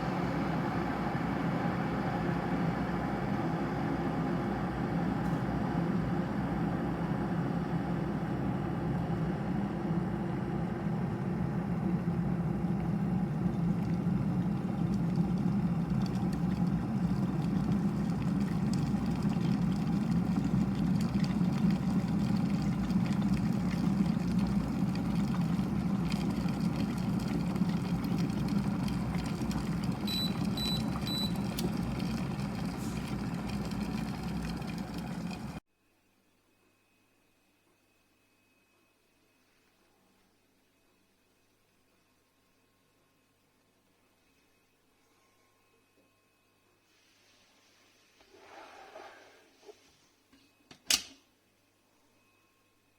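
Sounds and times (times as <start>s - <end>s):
electric kettle heating water: 0.0s - 35.6s
short high kettle beeps: 30.0s - 31.8s.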